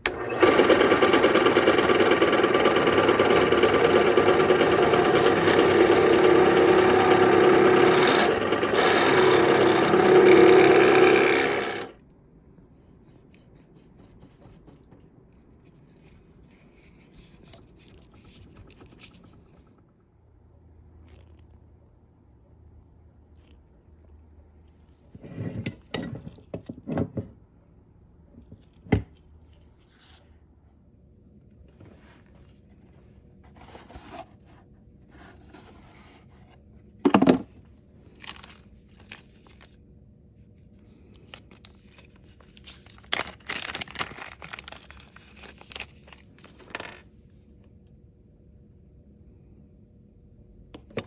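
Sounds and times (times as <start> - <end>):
rustling and scraping: 29.4 - 30.4, 31.6 - 39.8.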